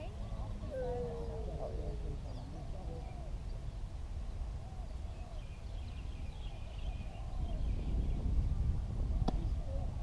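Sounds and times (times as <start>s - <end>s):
faint distant voices: 0.0s - 5.8s
wind rumble on microphone: 0.0s - 10.0s.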